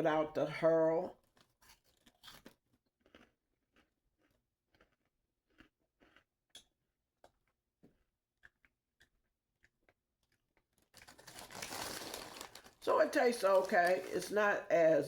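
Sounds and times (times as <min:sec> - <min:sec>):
person chewing crunchy snack: 0:01.2 - 0:12.6.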